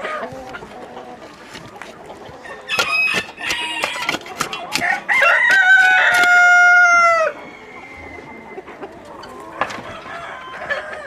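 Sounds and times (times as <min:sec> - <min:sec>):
chickens clucking: 0:00.0 - 0:11.0
rooster crowing: 0:02.4 - 0:04.1, 0:04.7 - 0:08.6, 0:09.9 - 0:11.0.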